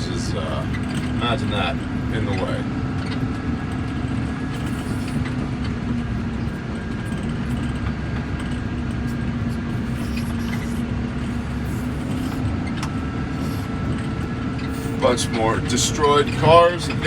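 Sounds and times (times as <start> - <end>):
loader engine rumbling: 0.0 - 17.0.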